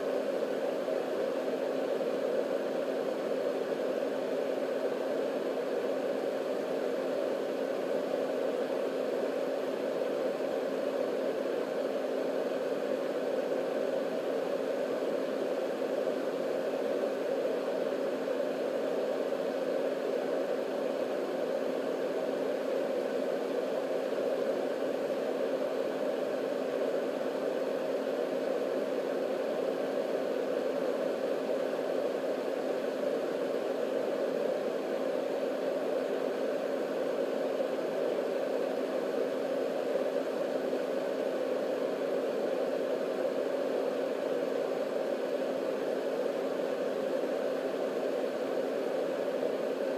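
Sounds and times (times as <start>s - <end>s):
faint steady hum: 0.0s - 49.9s
white noise machine fan rushing: 0.0s - 49.9s.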